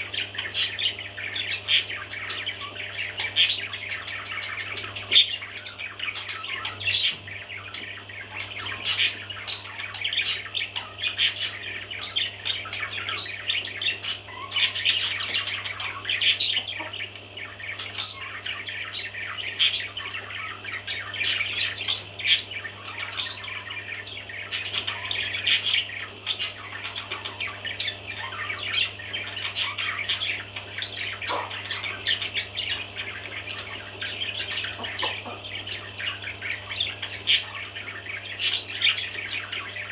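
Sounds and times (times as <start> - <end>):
baby parrots chirping: 0.0 - 39.9
low steady hum: 0.0 - 39.9
parrot squawks: 8.2 - 39.9.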